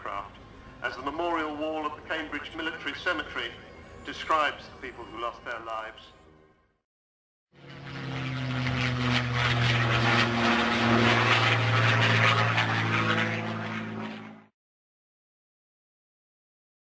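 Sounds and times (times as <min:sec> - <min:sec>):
propeller plane engines droning: 0:00.0 - 0:06.6, 0:07.6 - 0:14.5.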